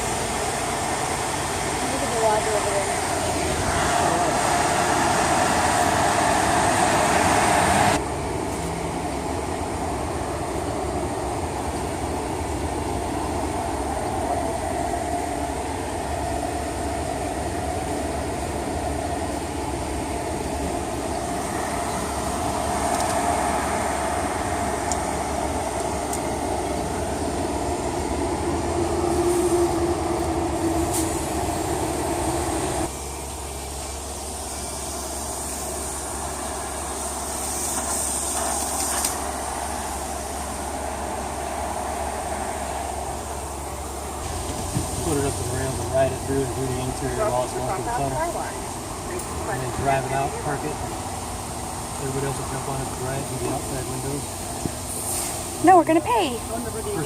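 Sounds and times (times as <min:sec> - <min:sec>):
steady machine noise with hiss: 0:00.0 - 0:57.0.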